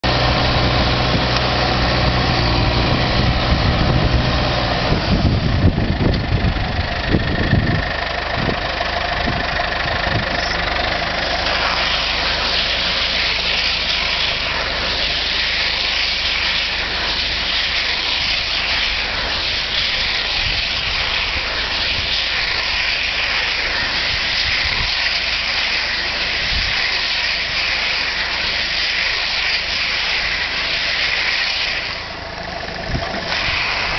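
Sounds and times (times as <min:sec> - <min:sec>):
diesel tractor engine running: 0:00.0 - 0:33.9
steady hiss: 0:09.5 - 0:33.9.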